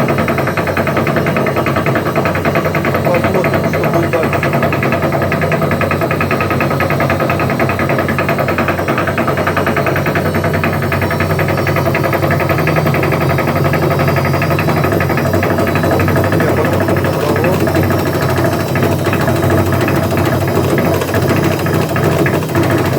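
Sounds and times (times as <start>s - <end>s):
washing machine drum rattling: 0.0s - 22.9s.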